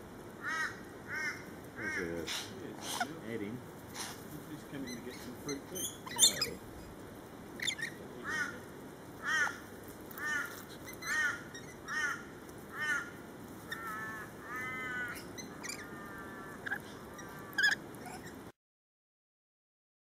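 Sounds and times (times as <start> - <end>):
long drawn-out bird calls: 0.4 - 3.2, 4.8 - 6.6, 7.6 - 18.5
bird screech: 5.8 - 6.6, 13.7 - 18.4
short bird calls: 13.7 - 18.4.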